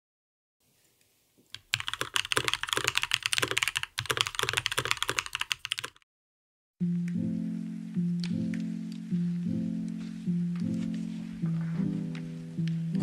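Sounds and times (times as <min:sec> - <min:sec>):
fast typing on mechanical keyboard: 0:01.5 - 0:06.0.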